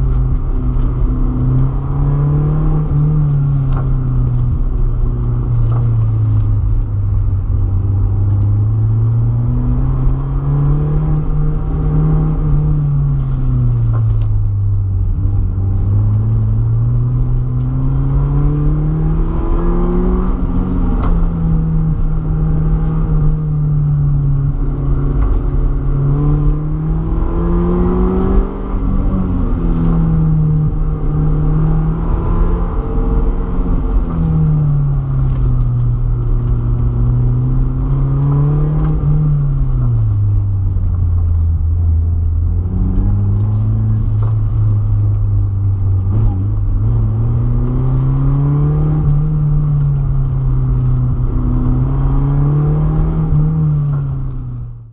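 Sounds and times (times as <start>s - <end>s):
car engine accelerating: 0.0s - 54.9s.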